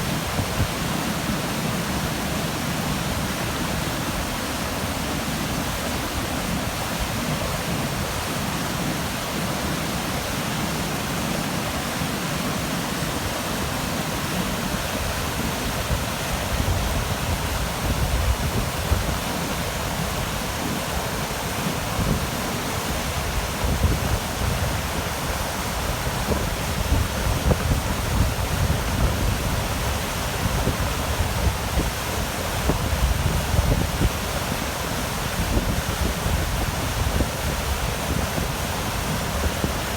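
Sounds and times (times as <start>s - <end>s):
wind buffeting microphone: 15.0s - 39.9s.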